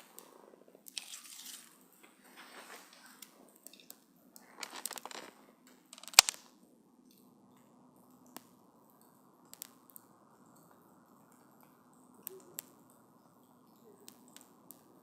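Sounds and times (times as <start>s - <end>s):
campfire crackling: 0.0s - 15.0s
fire hissing: 4.3s - 6.4s.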